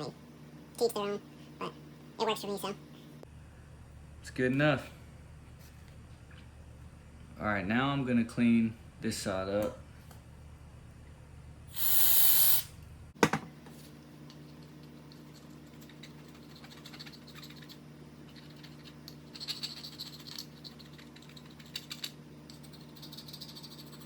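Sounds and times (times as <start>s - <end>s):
aerosol can hiss: 11.7s - 12.7s.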